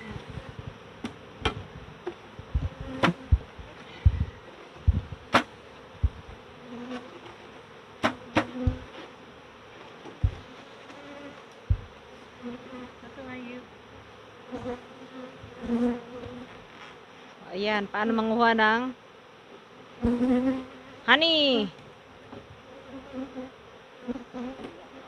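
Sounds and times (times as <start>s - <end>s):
honey bees buzzing: 0.0s - 25.0s
low thumps: 1.4s - 6.4s, 8.0s - 8.9s, 10.2s - 10.5s, 11.7s - 12.0s.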